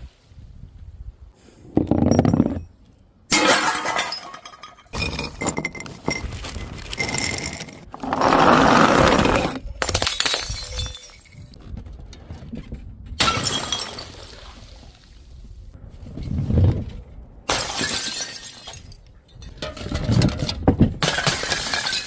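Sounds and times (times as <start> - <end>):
glass bottles shattering: 3.3 - 7.9, 9.8 - 11.6, 13.2 - 14.4, 17.5 - 19.6, 21.0 - 22.0.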